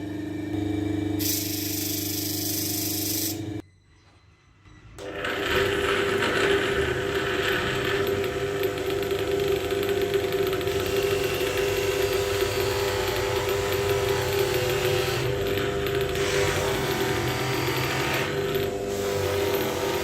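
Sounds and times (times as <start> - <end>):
electric tool grinding: 5.0 - 20.0.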